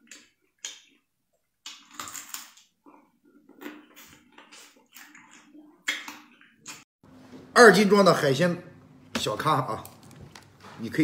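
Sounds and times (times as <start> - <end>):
crunchy chewing of crab: 0.0 - 6.9.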